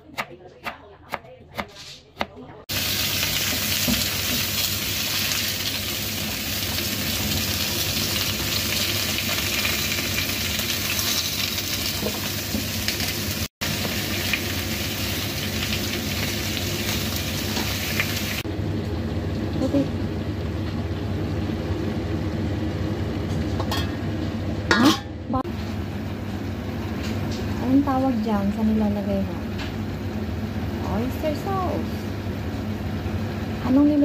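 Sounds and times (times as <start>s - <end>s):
turnip sizzling in a wok: 2.7s - 18.5s.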